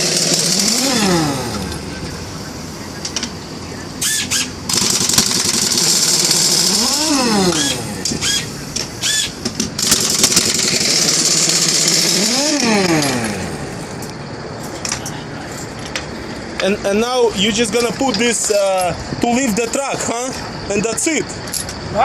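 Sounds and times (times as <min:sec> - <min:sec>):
pneumatic impact wrench: 0:00.0 - 0:02.0, 0:04.0 - 0:14.1.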